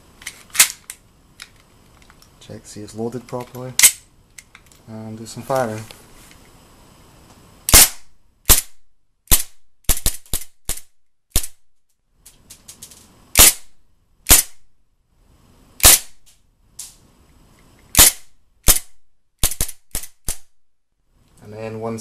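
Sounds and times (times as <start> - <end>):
pistol slide cycling: 0.2 - 1.6, 17.9 - 20.5
airsoft pistol shots: 7.7 - 11.6, 13.4 - 13.7, 14.3 - 14.6, 15.8 - 16.2, 18.0 - 20.5.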